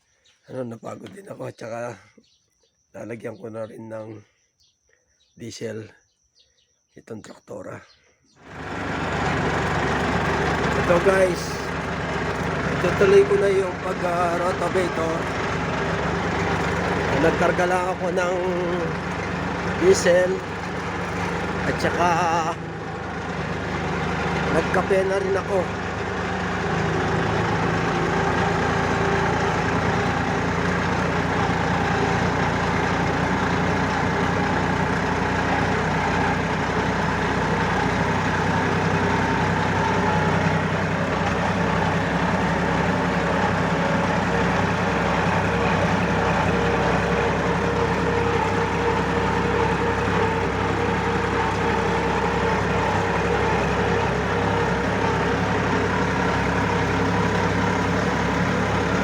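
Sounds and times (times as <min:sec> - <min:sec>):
rotavator tilling soil: 0:08.4 - 0:59.0
tractor diesel engine running: 0:08.4 - 0:59.0.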